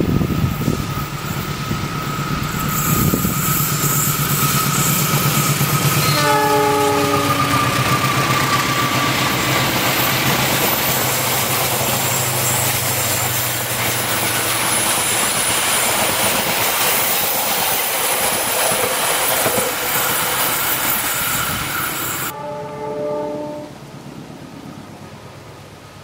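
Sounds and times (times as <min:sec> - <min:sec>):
diesel locomotive engine hum: 0:00.0 - 0:26.0
steel wheels rushing on rail: 0:00.0 - 0:26.0
faint wheel squeal: 0:00.3 - 0:15.8, 0:18.4 - 0:22.4.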